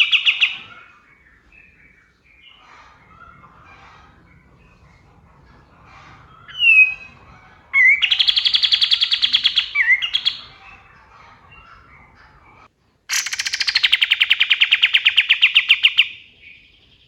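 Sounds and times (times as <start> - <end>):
faint bird twittering: 0.0 - 17.0
bird singing whistle and trill: 7.8 - 10.5.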